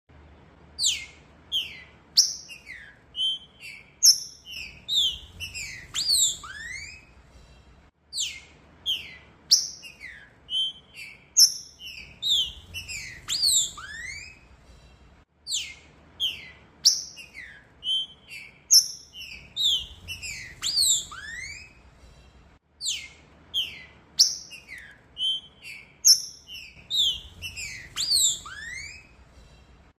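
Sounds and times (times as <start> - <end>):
bird singing whistled notes: 0.8 - 7.2, 8.1 - 14.5, 15.4 - 21.9, 22.8 - 29.6.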